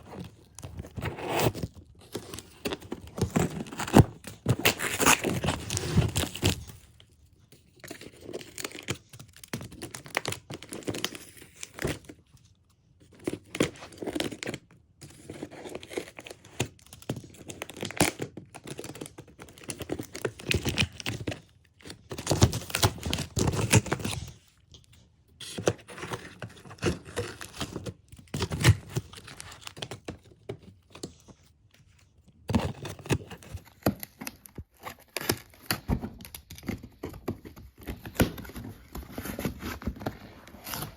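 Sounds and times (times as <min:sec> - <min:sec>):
packaging tearing and crinkling: 0:00.1 - 0:06.8.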